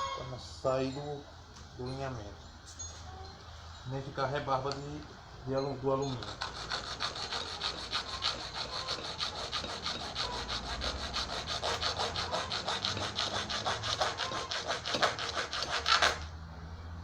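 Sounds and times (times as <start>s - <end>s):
saw cutting metal tube: 6.0s - 16.3s.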